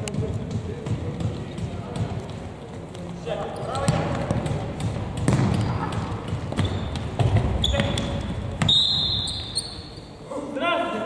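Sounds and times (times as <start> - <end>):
ball kicked and bouncing: 0.0 - 8.8
players' voices: 0.0 - 11.0
high steady whistle: 8.6 - 10.1.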